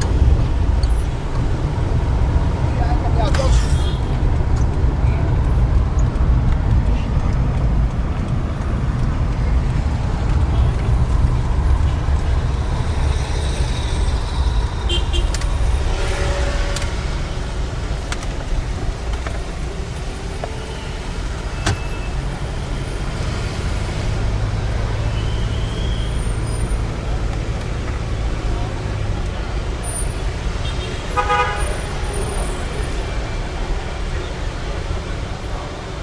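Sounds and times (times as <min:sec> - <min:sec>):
sharp clicks and rattles: 0:00.0 - 0:16.0.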